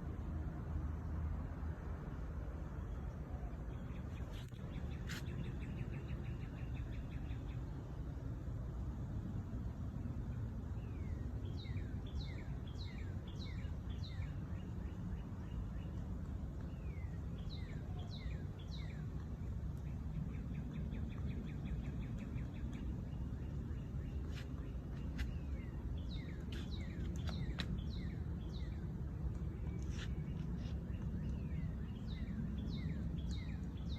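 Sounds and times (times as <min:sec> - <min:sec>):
low background rumble: 0:00.0 - 0:33.9
birds chirping and trilling: 0:16.6 - 0:33.9.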